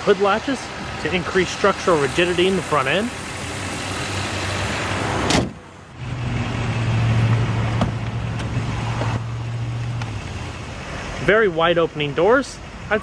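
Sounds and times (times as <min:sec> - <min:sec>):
car hood slamming shut: 0:05.2 - 0:05.6.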